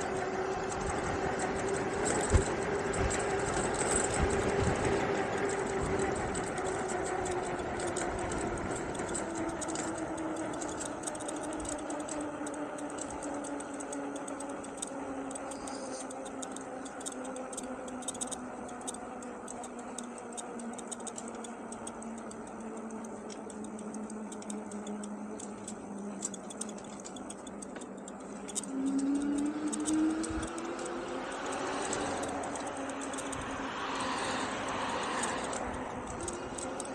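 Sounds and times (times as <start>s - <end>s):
electric bike motor whining: 0.0s - 36.9s
light clicks and rattles: 0.0s - 36.9s.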